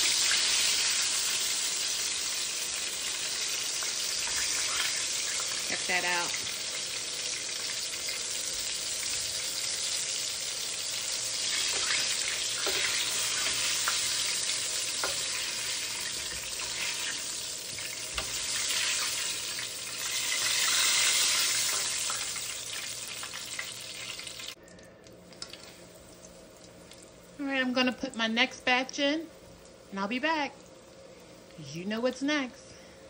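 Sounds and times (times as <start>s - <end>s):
fish sizzling in oil: 0.0s - 24.6s.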